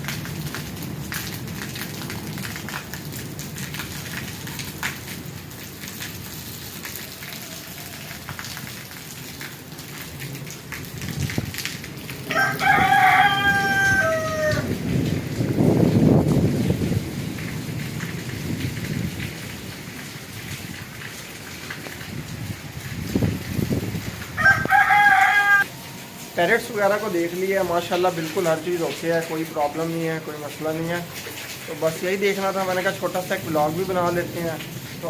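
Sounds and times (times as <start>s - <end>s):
rain falling: 0.0s - 35.0s
rooster crowing: 6.9s - 8.5s, 12.3s - 14.8s, 24.4s - 26.1s
thunder rumbling: 10.2s - 28.7s.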